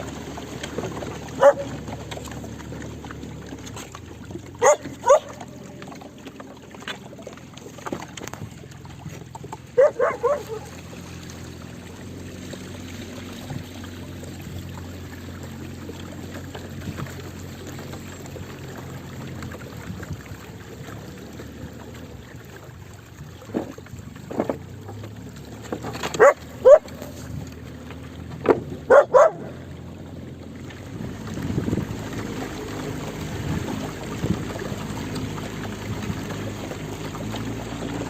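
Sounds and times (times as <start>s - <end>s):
dog barking: 1.4s - 1.7s, 4.6s - 5.4s, 9.8s - 10.7s, 26.2s - 26.9s, 28.9s - 29.5s.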